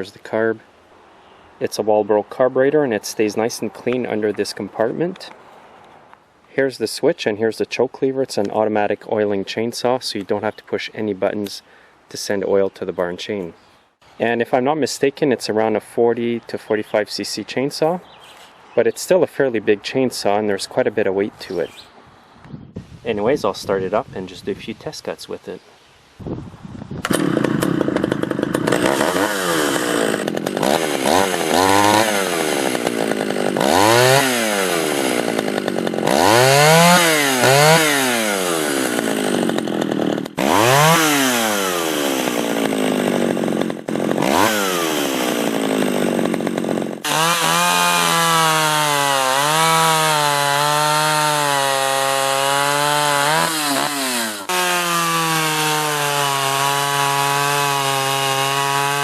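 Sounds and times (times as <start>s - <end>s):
chainsaw revving: 27.0s - 59.0s.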